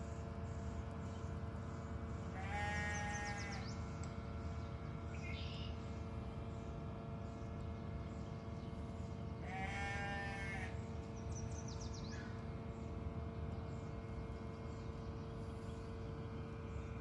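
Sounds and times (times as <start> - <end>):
steady background hum: 0.0 - 17.0
drawn-out animal call: 2.3 - 3.8, 9.4 - 10.8.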